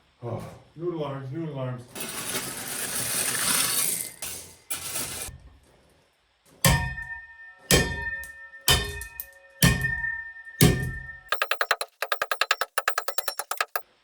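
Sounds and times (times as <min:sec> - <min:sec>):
hand tamper clanging on gravel: 0:06.7 - 0:13.8.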